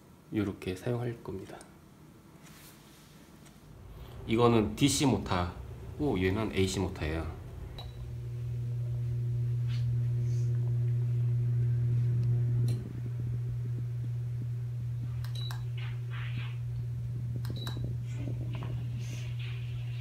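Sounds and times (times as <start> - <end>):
ceiling fan humming: 0.0 - 20.0
clicks: 15.2 - 15.9, 17.4 - 17.9.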